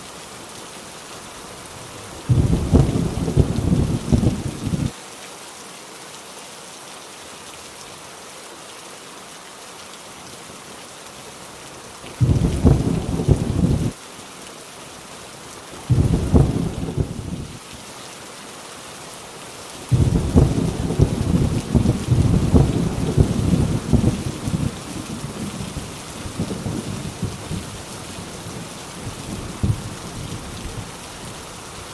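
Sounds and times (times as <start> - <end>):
heavy rain on a tin roof: 0.0 - 31.9
thunder rolling: 2.3 - 4.9, 12.2 - 14.0, 15.9 - 17.5, 19.9 - 27.7, 29.3 - 29.9.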